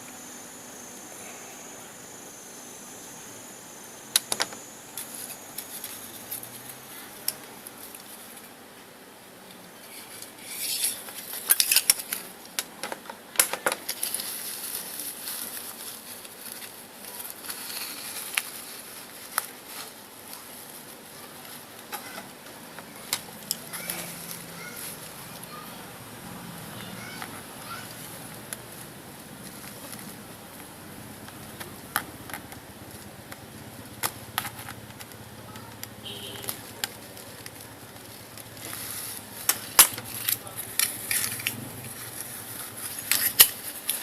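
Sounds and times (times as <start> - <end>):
small metal parts clinking: 9.9 - 12.2, 38.6 - 44.0.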